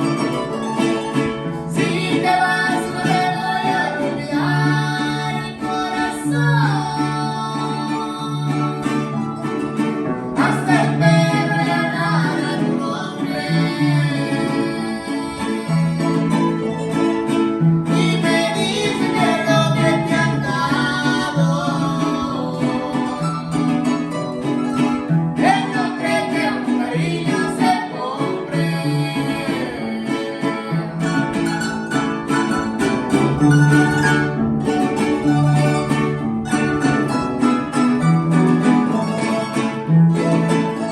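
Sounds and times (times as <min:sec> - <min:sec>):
plucked guitar: 0:00.0 - 0:40.9
person singing: 0:01.4 - 0:09.6, 0:10.3 - 0:24.5, 0:25.4 - 0:32.5, 0:38.5 - 0:40.9.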